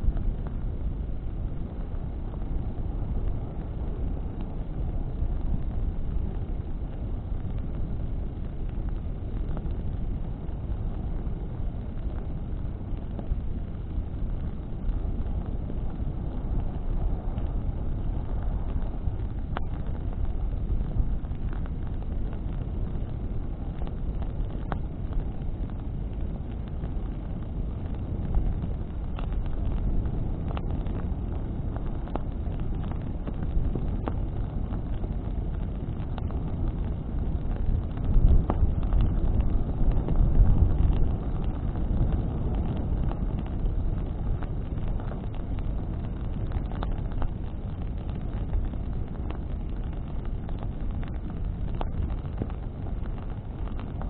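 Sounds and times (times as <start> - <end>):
flames and wind rumbling: 0.0 - 54.0.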